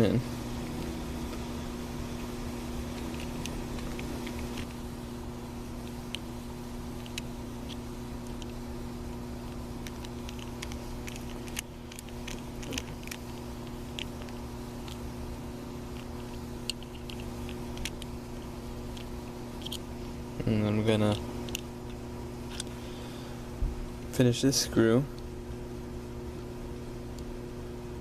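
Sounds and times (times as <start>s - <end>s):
low hum: 0.0s - 28.0s
screwdriver clicking on metal parts: 9.5s - 15.0s.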